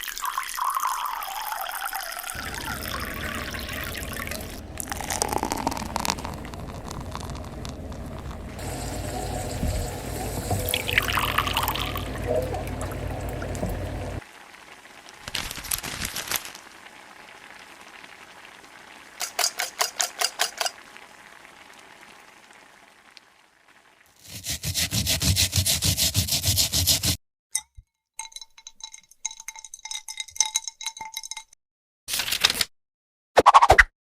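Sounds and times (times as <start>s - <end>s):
rapid scraping or stirring: 2.4s - 14.2s, 19.2s - 20.8s, 24.2s - 27.2s.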